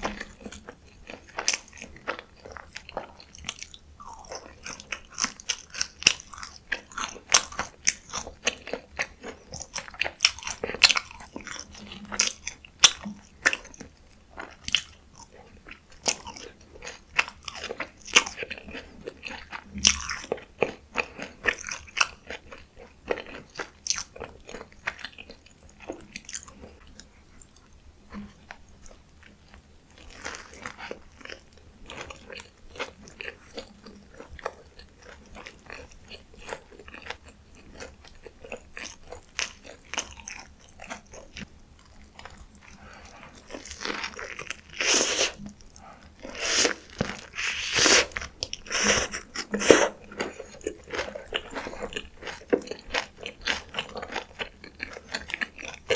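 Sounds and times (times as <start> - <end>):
wet chewing: 43.0 - 55.9
crunching bites: 46.4 - 49.9.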